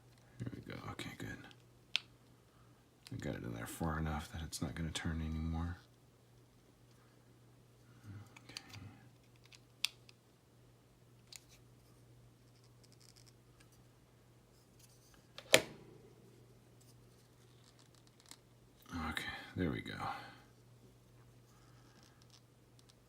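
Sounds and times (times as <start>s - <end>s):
plastic parts scratching: 12.4s - 13.8s, 16.8s - 18.4s.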